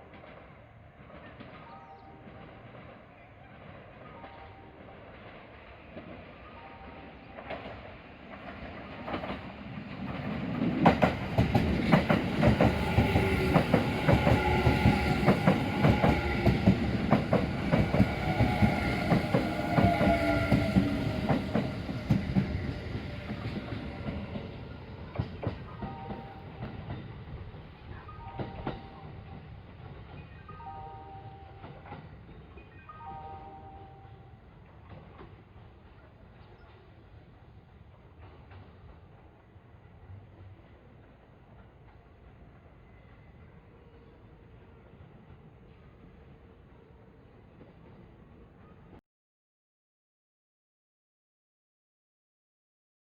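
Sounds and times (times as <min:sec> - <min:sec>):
electric train whine: 0:03.6 - 0:36.1
train wheels clacking over rail joints: 0:07.4 - 0:27.1.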